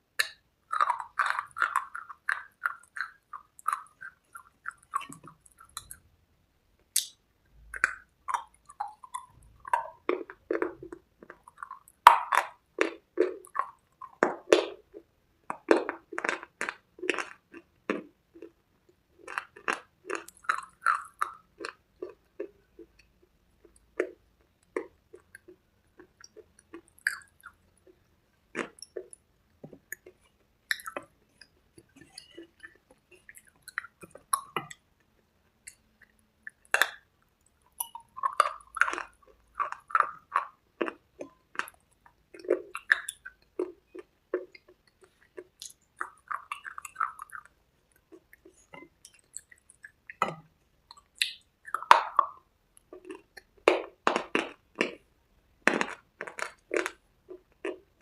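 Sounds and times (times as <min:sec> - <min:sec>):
sharp crunchy chewing: 0:00.2 - 0:06.0, 0:35.7 - 0:50.3, 0:50.9 - 0:58.0
wet soft chewing: 0:00.2 - 0:06.0, 0:07.0 - 0:58.0.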